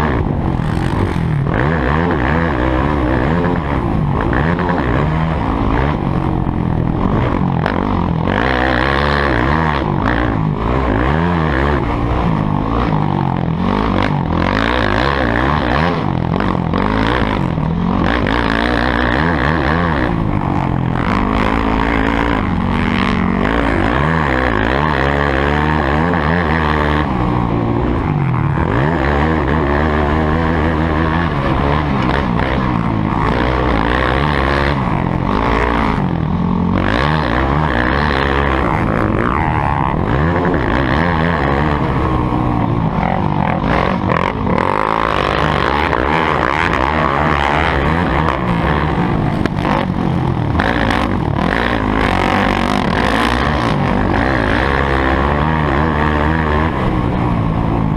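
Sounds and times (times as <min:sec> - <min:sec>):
motocross bike engines revving: 0:00.0 - 0:57.9.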